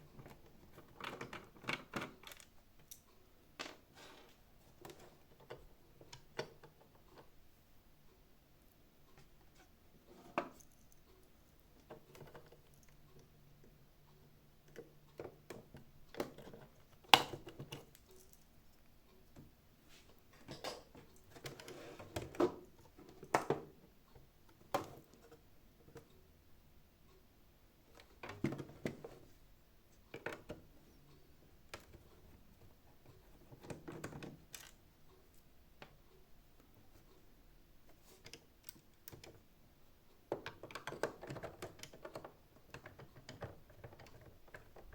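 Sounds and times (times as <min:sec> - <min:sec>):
plastic parts and tools clicking: 0:00.2 - 0:07.3, 0:31.7 - 0:34.8, 0:40.3 - 0:44.9.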